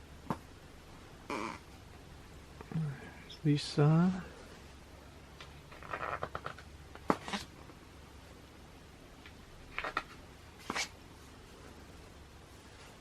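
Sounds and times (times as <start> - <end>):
magazine pages rustling and flicking: 5.7 - 7.5, 9.7 - 10.9.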